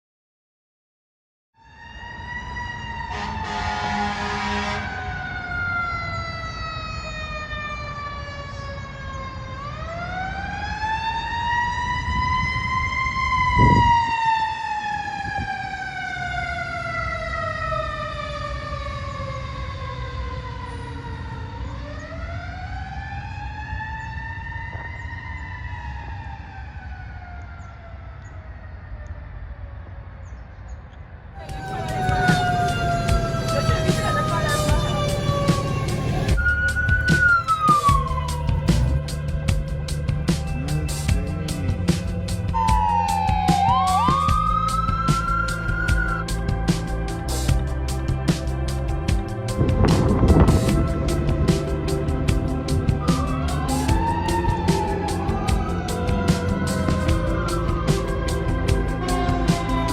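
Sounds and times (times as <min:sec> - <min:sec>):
air horn blast: 0:03.0 - 0:05.1, 0:31.4 - 0:36.6
truck engine rumbling: 0:31.4 - 0:42.5, 0:44.4 - 0:59.9.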